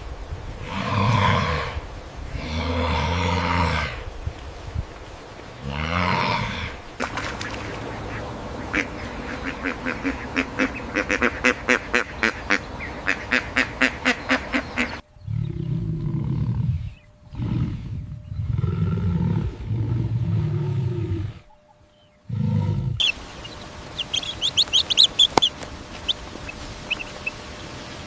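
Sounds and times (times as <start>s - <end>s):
deep growling animal calls: 0.6s - 4.1s, 5.6s - 27.9s
duck quacking: 7.0s - 15.0s, 23.0s - 27.6s.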